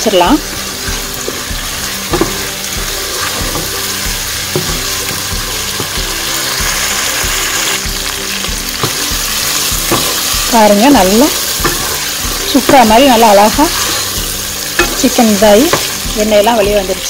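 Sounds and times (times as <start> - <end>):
chicken sizzling in pot: 0.0 - 17.0
wooden spatula scraping pot: 8.8 - 16.0.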